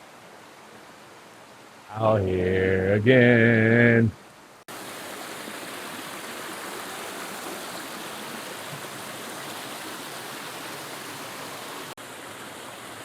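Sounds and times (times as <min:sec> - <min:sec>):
creek water rushing: 0:04.2 - 0:13.0.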